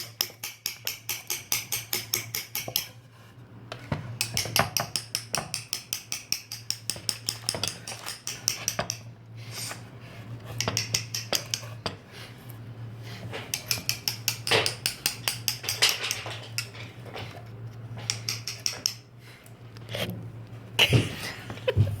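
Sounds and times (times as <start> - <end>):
mallet tapping chisel into wood: 0.1 - 2.9, 4.2 - 9.0, 10.6 - 11.7.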